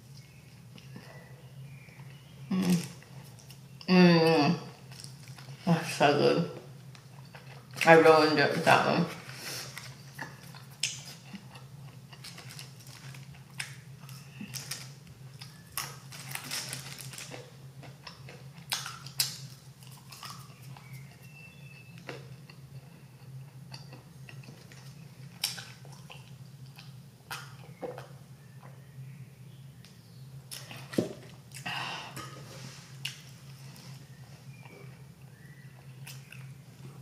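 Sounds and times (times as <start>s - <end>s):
steady low hum: 0.0s - 37.0s
chewing food: 6.8s - 7.8s, 9.7s - 28.8s, 33.0s - 37.0s.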